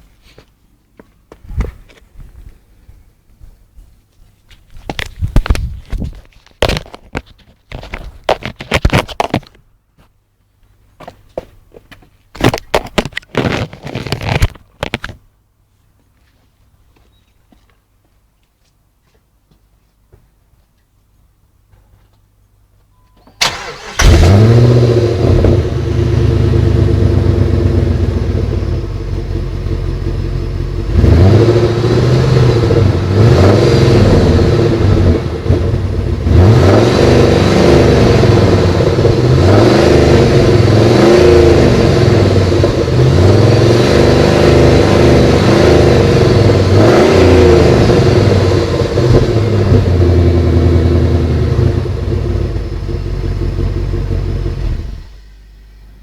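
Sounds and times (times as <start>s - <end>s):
engine cranking and starting: 23.3s - 26.2s
car engine idling and revving: 23.4s - 55.7s.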